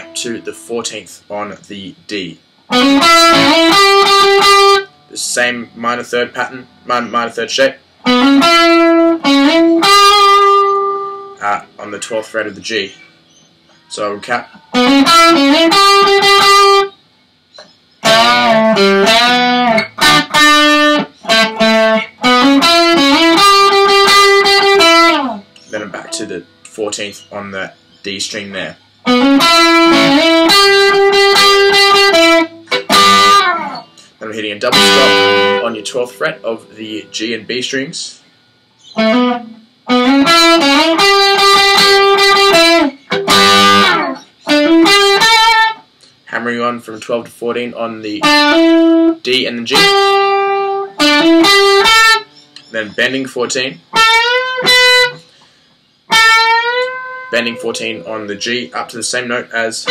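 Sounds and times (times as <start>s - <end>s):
electric guitar lead: 0.0s - 0.6s, 2.4s - 5.1s, 8.0s - 11.8s, 14.5s - 17.0s, 17.6s - 26.8s, 29.0s - 37.6s, 38.8s - 45.9s, 48.2s - 52.7s, 53.8s - 55.4s, 56.1s - 59.9s.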